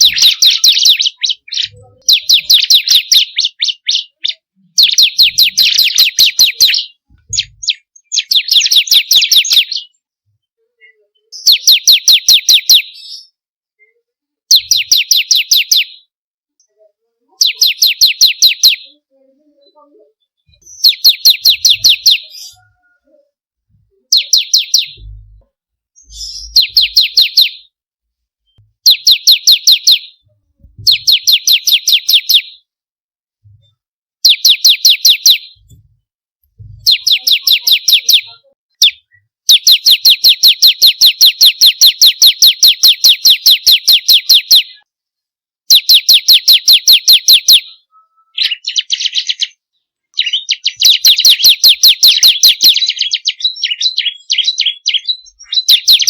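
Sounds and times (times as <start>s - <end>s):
bird singing sharp notes: 0.0s - 9.9s, 20.6s - 22.6s, 24.1s - 25.4s, 26.0s - 27.7s, 30.9s - 32.6s.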